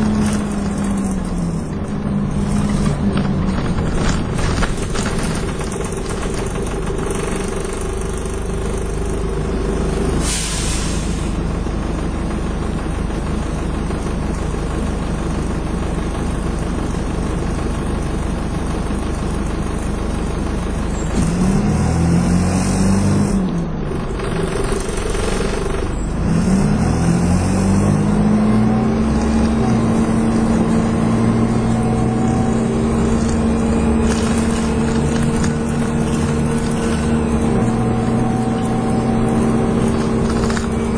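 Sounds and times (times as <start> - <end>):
bus engine: 0.0 - 40.9
air brake hiss: 10.2 - 11.4.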